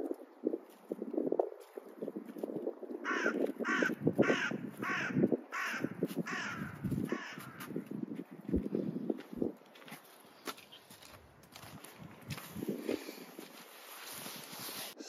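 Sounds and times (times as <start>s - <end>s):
hands rustling and scraping: 11.8s - 15.0s.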